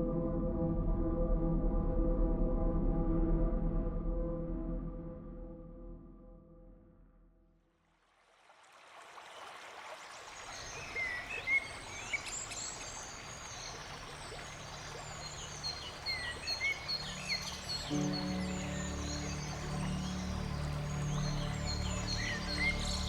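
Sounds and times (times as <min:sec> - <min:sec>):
river water rushing: 0:08.5 - 0:23.0
songbirds chirping: 0:10.1 - 0:23.0.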